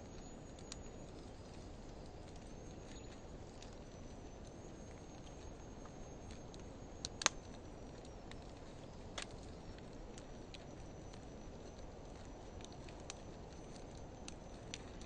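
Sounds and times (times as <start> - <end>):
fire crackles and pops: 0.0 - 15.0
wood fire hissing: 0.0 - 15.0.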